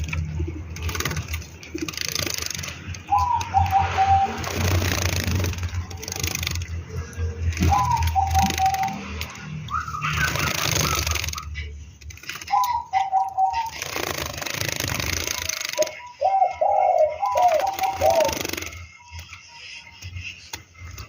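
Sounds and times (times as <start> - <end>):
doves cooing: 0.0 - 21.0
rushing noise bursts: 3.2 - 6.7.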